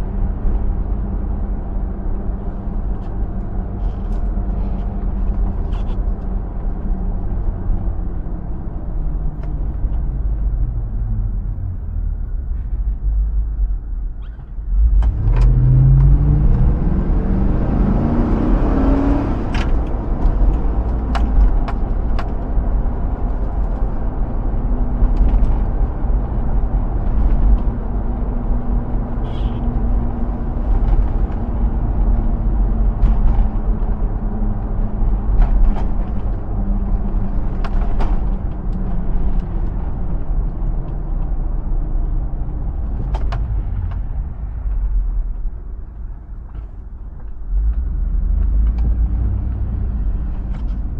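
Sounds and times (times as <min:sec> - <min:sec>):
road rumble: 0:00.0 - 0:50.9
engine accelerating hard: 0:14.8 - 0:21.4.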